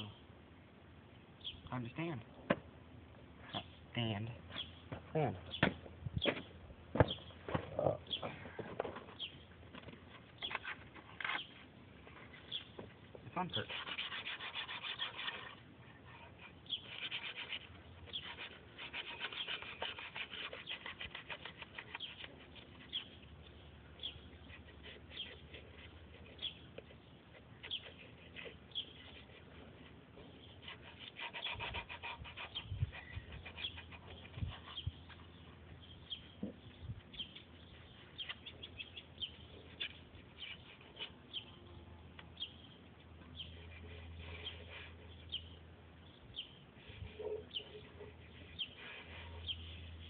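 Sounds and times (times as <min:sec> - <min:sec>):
small birds chirping: 0:01.1 - 0:02.2, 0:03.4 - 0:50.0
scratchy rubbing strokes: 0:13.4 - 0:35.4, 0:46.8 - 0:50.0.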